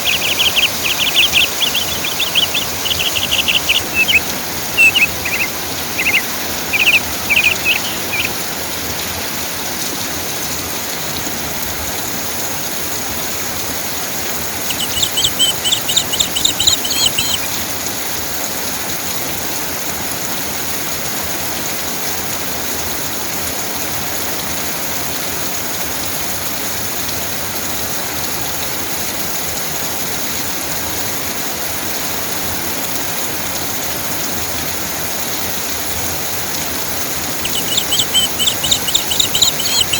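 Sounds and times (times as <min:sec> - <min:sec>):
bird chirping: 0:00.0 - 0:08.6, 0:14.5 - 0:17.6, 0:36.6 - 0:39.9
steady rain falling: 0:00.0 - 0:39.9.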